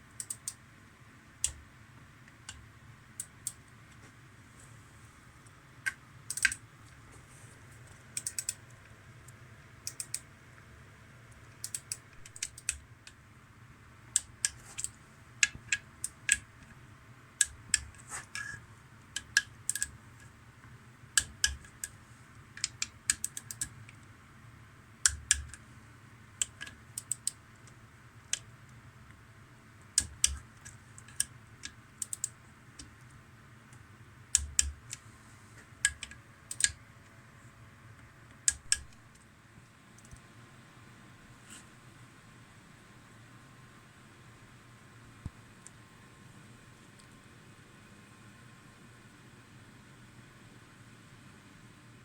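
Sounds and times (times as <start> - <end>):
metallic clicks and taps: 0.1 - 0.6, 5.4 - 7.0, 7.8 - 8.8, 9.8 - 10.3, 11.5 - 13.2, 14.1 - 16.8, 19.1 - 22.0, 22.6 - 24.1, 25.0 - 25.6, 26.4 - 28.5, 29.9 - 35.0, 35.6 - 36.8, 38.0 - 40.3.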